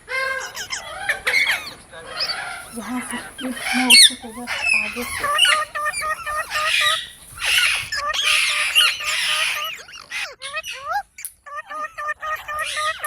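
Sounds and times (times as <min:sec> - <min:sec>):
parrot squawking and chirping: 0:00.1 - 0:13.0.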